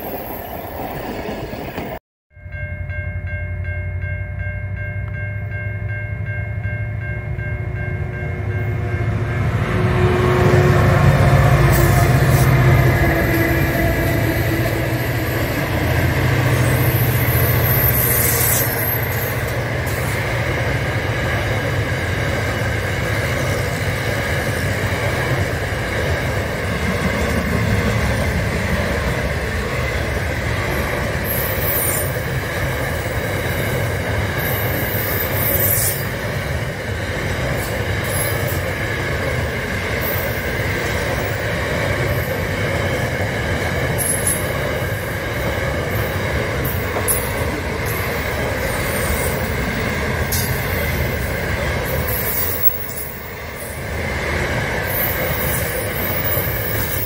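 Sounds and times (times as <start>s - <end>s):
train wheels rumbling on rail: 0.0s - 2.0s, 7.0s - 57.0s
high-pitched wheel squeals: 16.5s - 19.4s.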